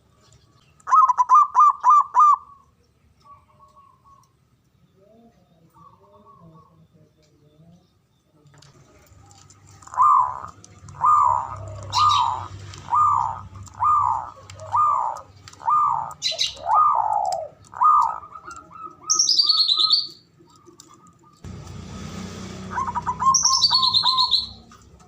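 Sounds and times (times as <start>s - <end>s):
dove cooing: 0.8s - 4.2s, 9.7s - 21.4s, 22.6s - 25.0s
bird descending call: 9.9s - 20.2s, 22.6s - 24.7s
short high bird chirps: 22.7s - 24.6s.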